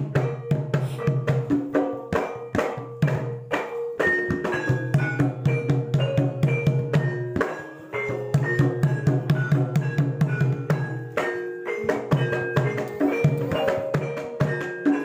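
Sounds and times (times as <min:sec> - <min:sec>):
drum strokes: 0:00.0 - 0:15.0.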